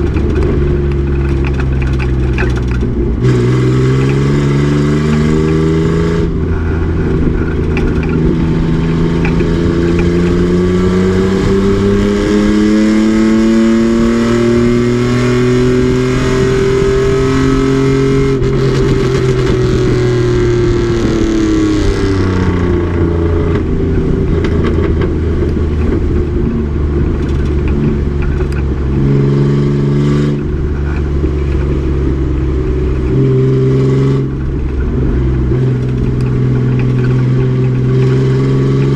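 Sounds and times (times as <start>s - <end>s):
truck engine accelerating: 0.0s - 38.9s.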